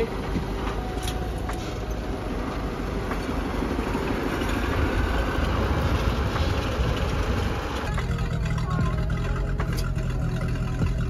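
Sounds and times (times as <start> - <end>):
motorboat engine running: 3.2 - 11.0.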